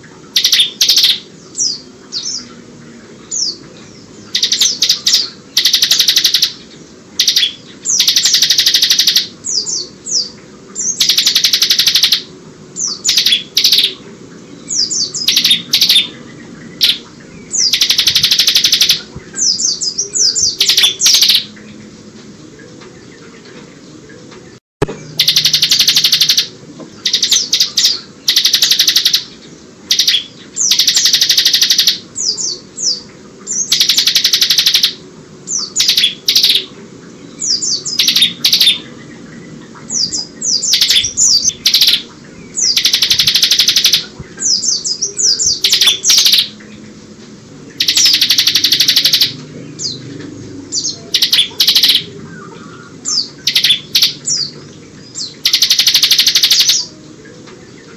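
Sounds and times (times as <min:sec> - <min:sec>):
bird rattling trills: 0:00.3 - 0:01.2, 0:04.3 - 0:06.6, 0:07.2 - 0:09.3, 0:10.9 - 0:12.3, 0:13.0 - 0:14.0, 0:15.1 - 0:16.1, 0:16.8 - 0:19.1, 0:20.5 - 0:21.5, 0:25.2 - 0:29.3, 0:29.9 - 0:32.0, 0:33.6 - 0:35.0, 0:35.7 - 0:36.7, 0:37.9 - 0:38.8, 0:40.6 - 0:46.6, 0:47.8 - 0:49.4, 0:51.1 - 0:52.1, 0:53.4 - 0:54.4, 0:55.4 - 0:56.9.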